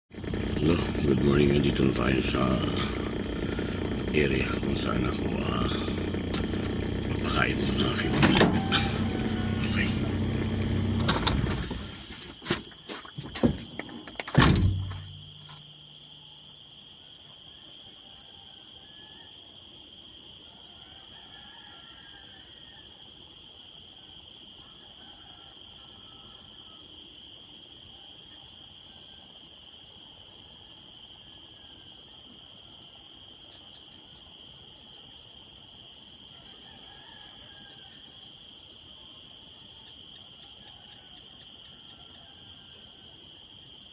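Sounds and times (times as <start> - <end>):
crickets chirping: 0.1 - 43.9
loud knocks and clatters: 13.2 - 15.1.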